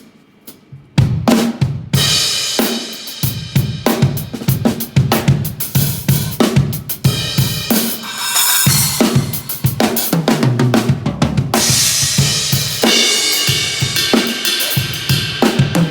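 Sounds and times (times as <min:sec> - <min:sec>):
drum kit playing: 0:04.1 - 0:15.9
crash cymbal hits ringing: 0:07.8 - 0:10.2.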